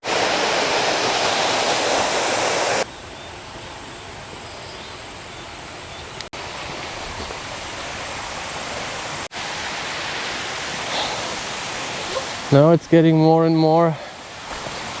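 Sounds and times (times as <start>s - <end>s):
waterfall rushing: 0.0s - 2.9s, 6.4s - 15.0s.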